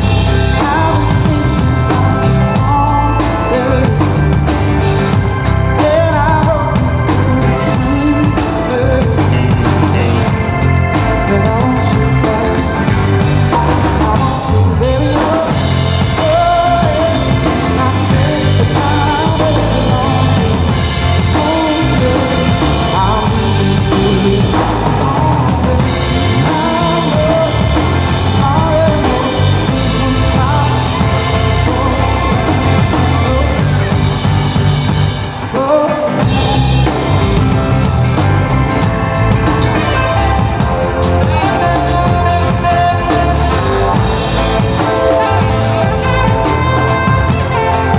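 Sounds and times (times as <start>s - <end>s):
live rock band playing: 0.0s - 47.9s.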